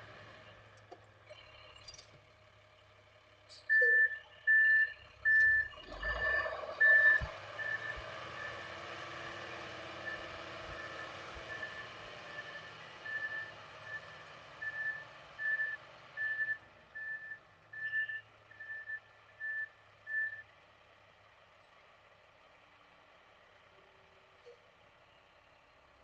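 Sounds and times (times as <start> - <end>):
engine running: 0.0 - 26.0
reversing alarm beeping: 3.5 - 8.6, 10.0 - 20.4.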